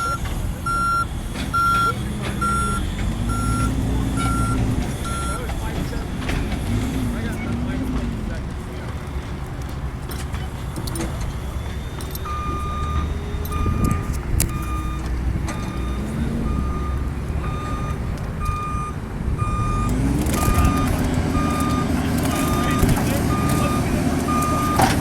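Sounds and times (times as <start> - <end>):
reverse alarm beeping: 0.0 - 5.5, 11.5 - 25.0
diesel engine running: 0.0 - 25.0.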